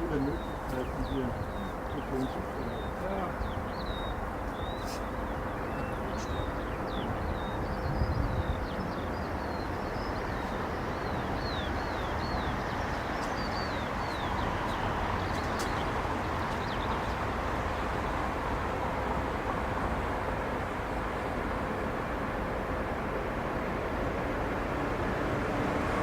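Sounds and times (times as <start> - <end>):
jet engines rumbling: 0.0 - 13.0
small bird chirping: 0.1 - 9.0.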